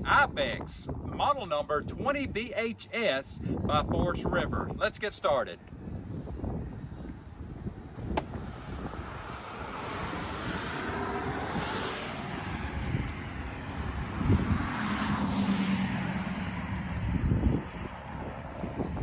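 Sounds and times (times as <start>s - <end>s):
wind on microphone: 0.0s - 2.6s, 3.3s - 19.0s
engine noise: 7.8s - 19.0s.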